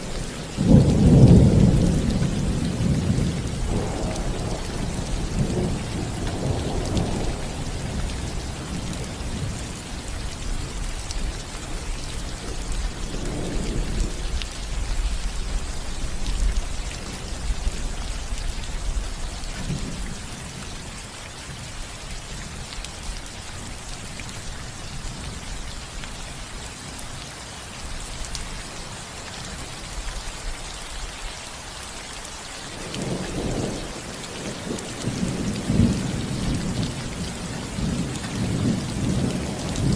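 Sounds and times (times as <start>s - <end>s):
low rolling thunder: 0.0s - 20.4s, 32.7s - 39.9s
rain on a roof: 0.0s - 39.9s.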